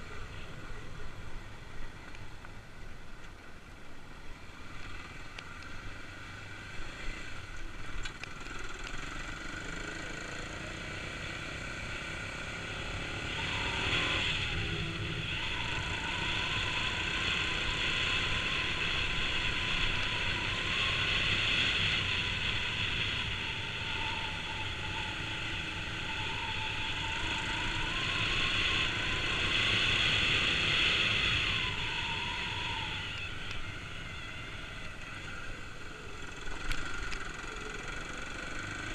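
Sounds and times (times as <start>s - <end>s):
motorcycle engine revving: 8.2s - 38.9s.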